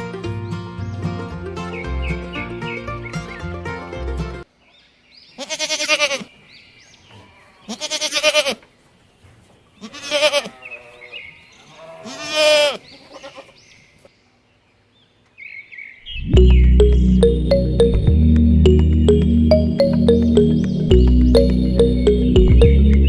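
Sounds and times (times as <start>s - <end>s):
farm animal bleating: 5.4s - 6.4s, 7.1s - 8.7s, 9.7s - 13.6s.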